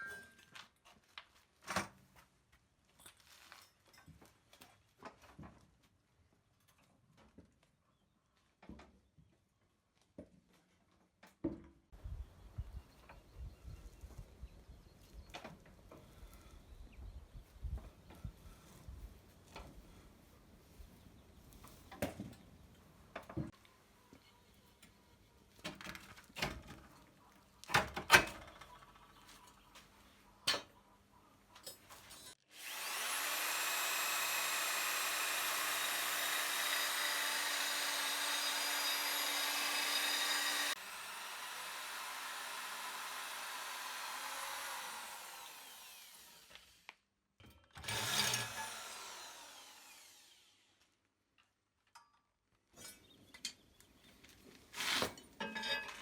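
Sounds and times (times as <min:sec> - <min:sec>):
electric power tool running: 0:32.4 - 0:46.9, 0:47.8 - 0:50.8
rough scraping: 0:54.6 - 0:55.3.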